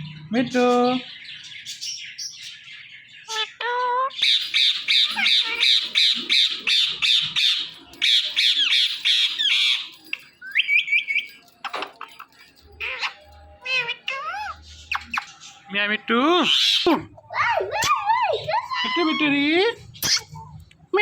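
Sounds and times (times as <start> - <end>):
parakeet screeching: 3.3 - 11.2, 12.7 - 15.4, 16.4 - 20.4.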